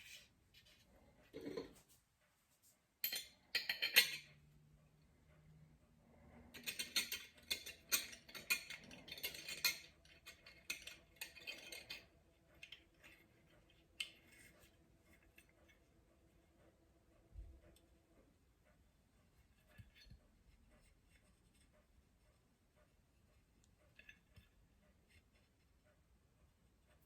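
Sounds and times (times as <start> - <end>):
small metal parts clicking and rattling: 3.0 - 4.4, 6.5 - 15.8.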